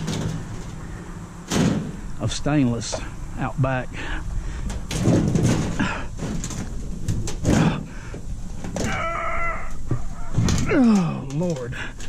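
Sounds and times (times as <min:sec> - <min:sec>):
metal knocks and clanks: 0:00.0 - 0:02.1, 0:04.6 - 0:09.0, 0:09.8 - 0:11.7.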